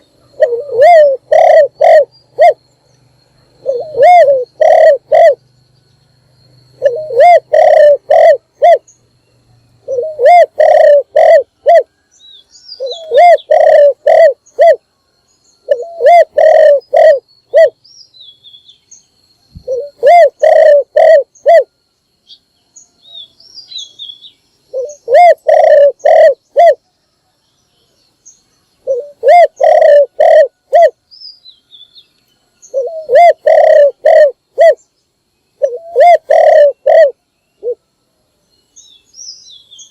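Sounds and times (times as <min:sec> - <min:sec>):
small birds chirping: 0:00.0 - 0:37.8, 0:38.4 - 0:39.9
dove cooing: 0:00.2 - 0:02.6, 0:03.6 - 0:05.4, 0:06.8 - 0:08.9, 0:09.8 - 0:11.9, 0:12.8 - 0:14.8, 0:15.6 - 0:17.8, 0:19.6 - 0:21.7, 0:24.7 - 0:26.8, 0:28.8 - 0:31.0, 0:32.7 - 0:34.8, 0:35.6 - 0:37.8.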